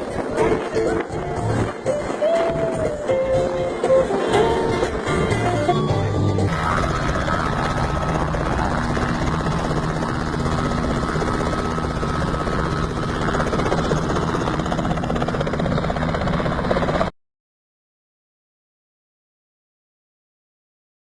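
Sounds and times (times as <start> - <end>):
helicopter rotor blades chopping: 0.0 - 17.1.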